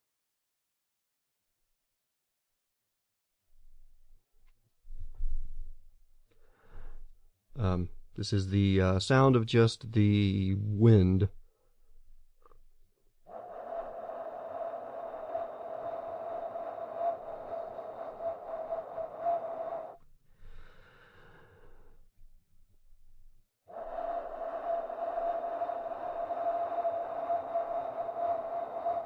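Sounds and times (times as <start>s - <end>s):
wind blowing: 13.3s - 20.0s, 23.7s - 29.0s.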